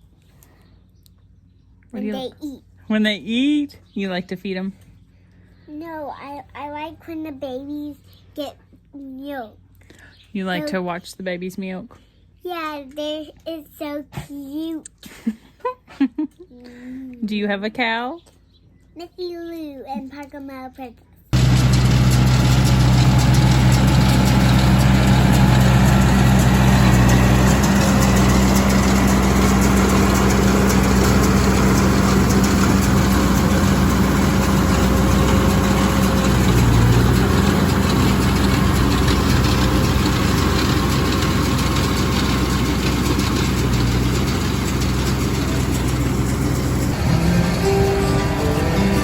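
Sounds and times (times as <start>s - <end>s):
tractor engine running: 21.4s - 49.0s.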